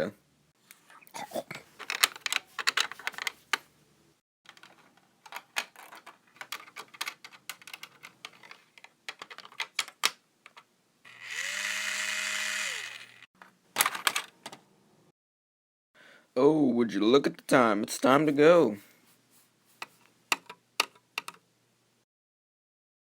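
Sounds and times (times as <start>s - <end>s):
clicking and tapping of bricks and tools: 4.5s - 10.7s, 19.8s - 21.4s
power drill whirring: 11.1s - 13.3s.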